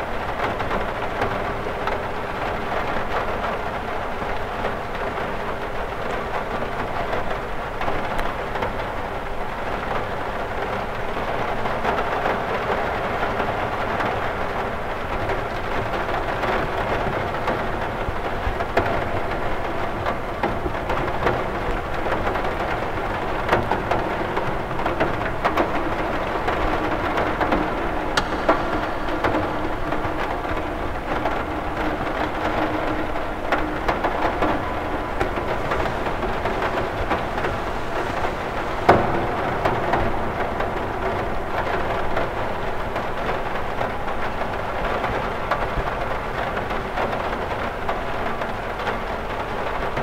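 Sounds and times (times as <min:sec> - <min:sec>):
rain on a window: 0:00.0 - 0:50.0
low rumbling undertone: 0:24.1 - 0:44.0.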